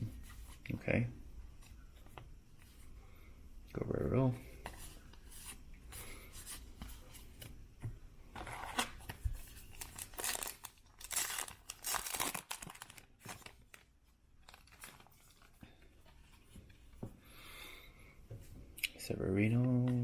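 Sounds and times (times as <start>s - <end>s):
cards rustling: 8.4s - 16.6s
foil wrapper tearing and crinkling: 9.7s - 15.4s.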